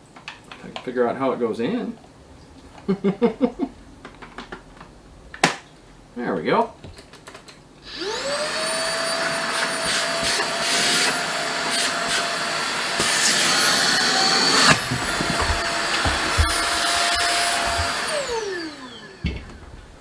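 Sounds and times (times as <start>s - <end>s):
vacuum motor whine: 7.9s - 20.0s.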